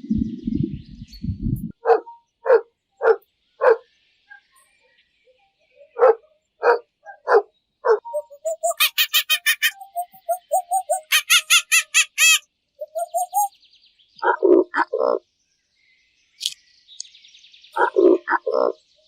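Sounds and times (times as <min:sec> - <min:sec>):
dog barking: 0:01.8 - 0:04.5, 0:05.8 - 0:08.0, 0:14.2 - 0:15.2, 0:17.8 - 0:18.8.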